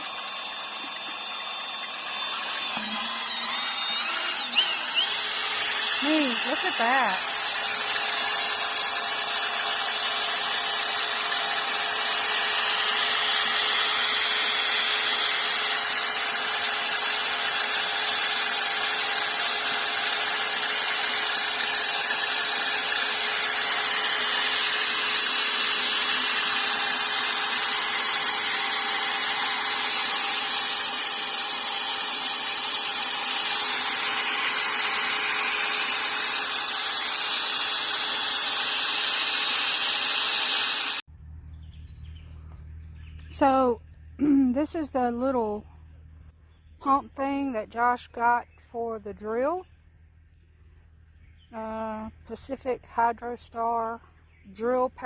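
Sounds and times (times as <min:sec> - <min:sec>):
power drill running: 0:00.0 - 0:41.1.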